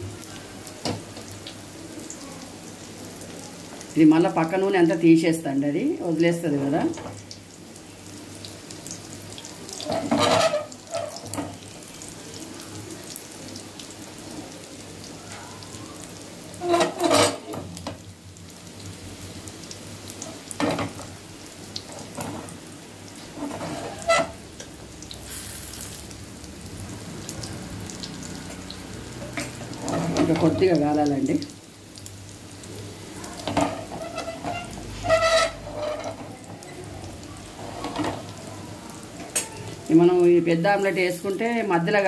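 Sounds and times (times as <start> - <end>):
oil sizzling in a pan: 0.0 - 42.0
spatula scraping a pan: 9.8 - 11.6, 16.6 - 17.6, 23.2 - 24.4, 29.4 - 30.6, 33.4 - 36.6, 37.5 - 38.4.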